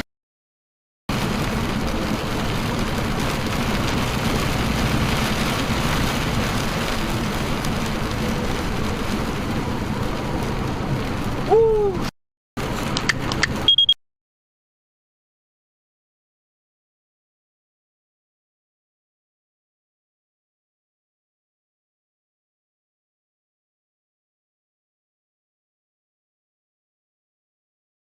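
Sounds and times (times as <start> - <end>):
car road and engine noise: 1.1 - 14.0
short high beep: 13.7 - 14.0.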